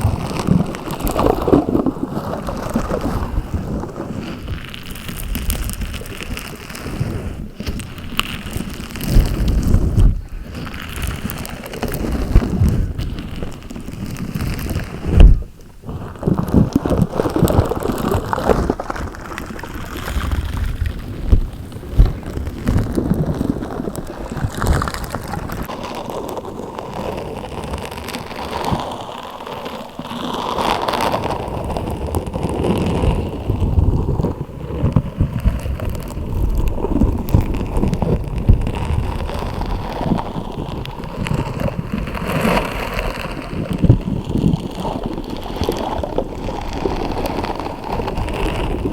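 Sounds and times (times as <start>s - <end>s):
slime squelching and crackling: 0.0s - 48.9s.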